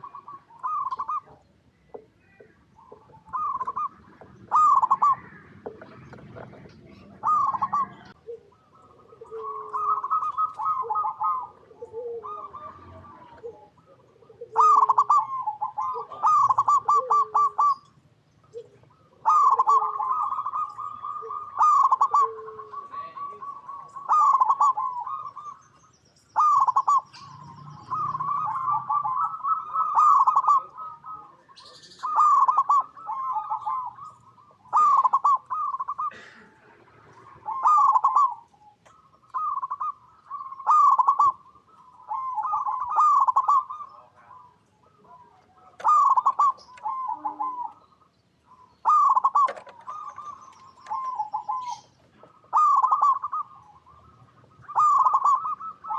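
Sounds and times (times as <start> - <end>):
soft low coos: 0.0 - 17.8, 18.5 - 25.3, 40.6 - 47.8
dove cooing: 0.0 - 55.9.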